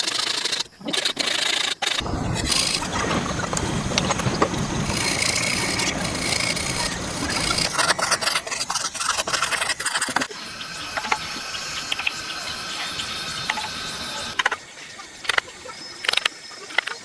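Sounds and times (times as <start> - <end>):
tool scraping wood: 1.9 - 10.2.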